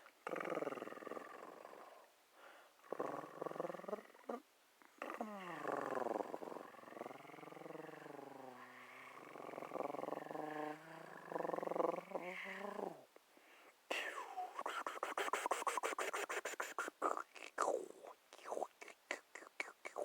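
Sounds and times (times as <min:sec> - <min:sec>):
person making wordless vocal sounds: 0:13.9 - 0:20.0.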